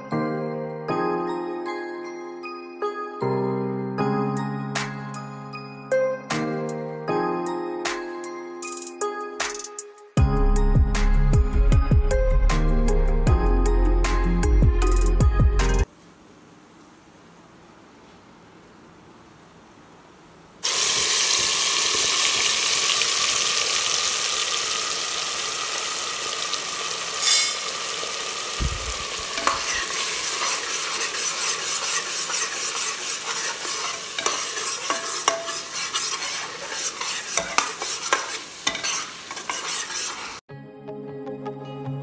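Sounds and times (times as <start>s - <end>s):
paste sizzling in hot oil: 20.6s - 40.4s
metal spatula scraping a pot: 27.2s - 27.8s, 29.2s - 40.4s.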